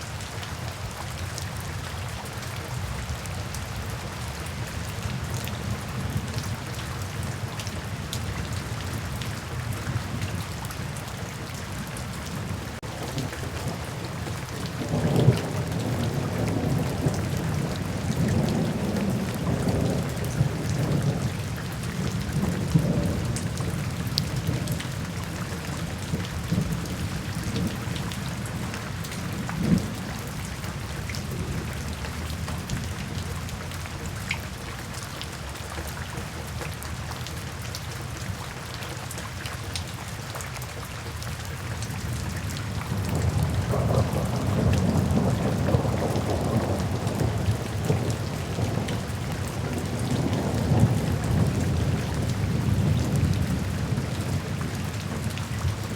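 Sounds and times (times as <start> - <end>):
steady rainfall: 0.0 - 55.9
low rolling thunder: 12.4 - 33.6, 42.0 - 55.9.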